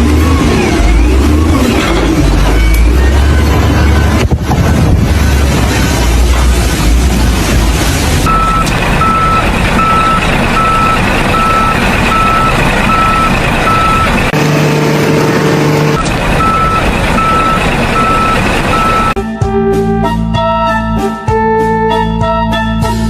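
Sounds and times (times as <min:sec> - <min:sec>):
engine and machinery noise: 0:00.0 - 0:19.2
reversing alarm beeping: 0:08.3 - 0:14.3, 0:15.9 - 0:19.2.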